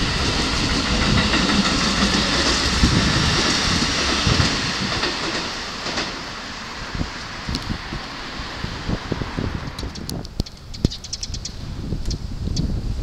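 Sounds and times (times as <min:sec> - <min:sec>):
electric train rushing past: 0:00.0 - 0:10.4.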